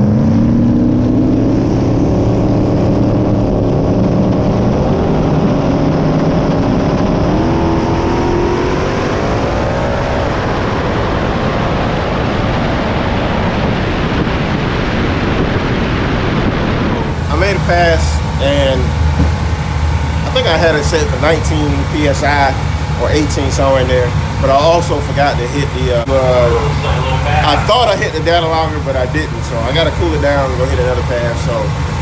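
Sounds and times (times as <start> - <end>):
race car engine at full throttle: 0.0 - 32.0.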